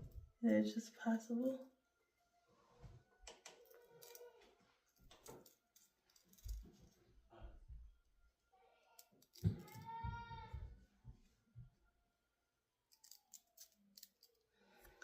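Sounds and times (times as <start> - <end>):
scissors snipping: 3.4 - 4.3, 9.0 - 9.8, 12.9 - 15.0.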